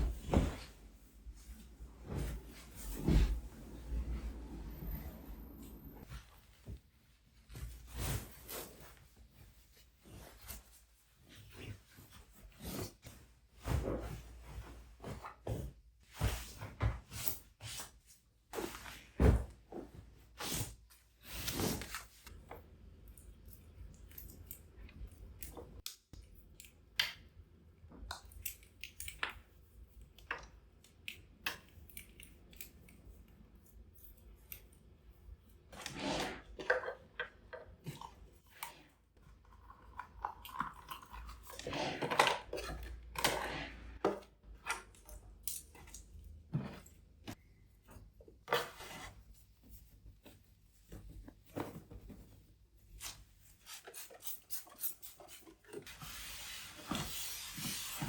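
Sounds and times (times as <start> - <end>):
household handling rustles: 0.0 - 22.4, 41.4 - 58.0.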